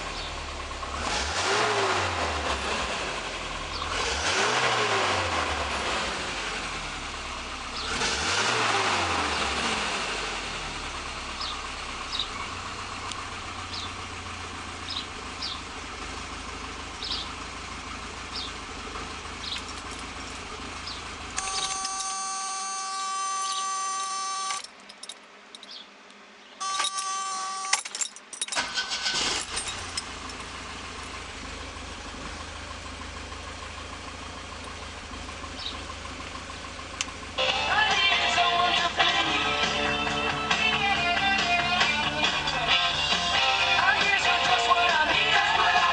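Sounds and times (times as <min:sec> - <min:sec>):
car engine idling: 0:00.0 - 0:45.9
faint engine ticks: 0:11.4 - 0:21.7, 0:29.6 - 0:39.2
clicks: 0:21.4 - 0:22.2, 0:22.8 - 0:28.6
engine starting: 0:21.4 - 0:22.3, 0:26.7 - 0:30.2
buzzer tone: 0:21.4 - 0:24.7, 0:26.6 - 0:27.9.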